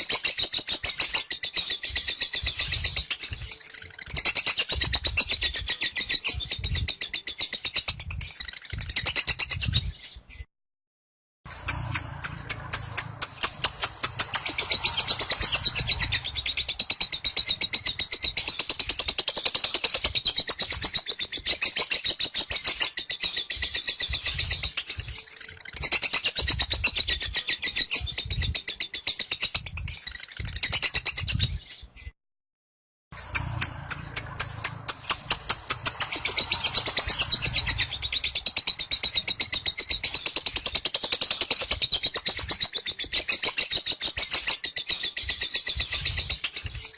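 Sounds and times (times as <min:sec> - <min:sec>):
lovebird chattering: 0:11.5 - 0:31.3, 0:33.2 - 0:46.9.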